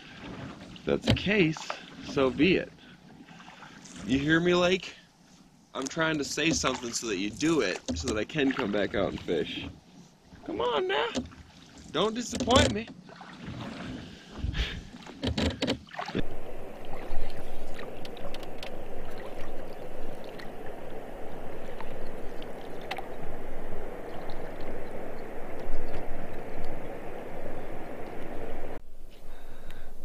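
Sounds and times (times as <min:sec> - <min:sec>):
water lapping and splashing: 0:00.0 - 0:28.8
knocks on canoe: 0:12.3 - 0:13.0.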